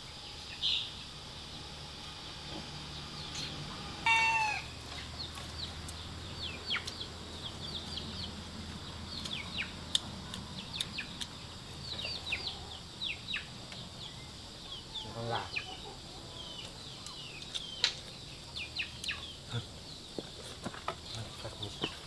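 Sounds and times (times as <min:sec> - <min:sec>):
high chick chirps: 0:00.1 - 0:20.3
chicken squawk: 0:04.0 - 0:04.9.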